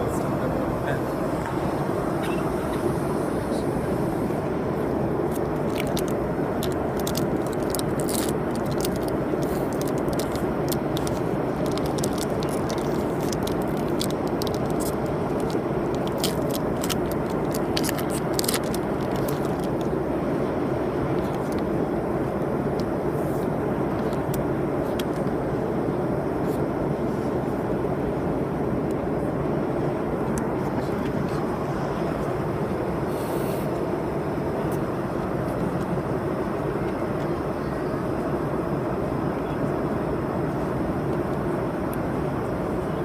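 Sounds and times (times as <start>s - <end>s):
airliner cabin noise: 0.0s - 43.0s
foil pack crinkling: 5.7s - 19.9s.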